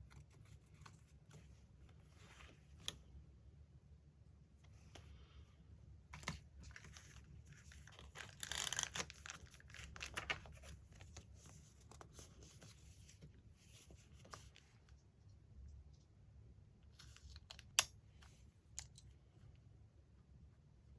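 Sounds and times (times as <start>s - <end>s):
paper crinkling: 6.2s - 14.7s.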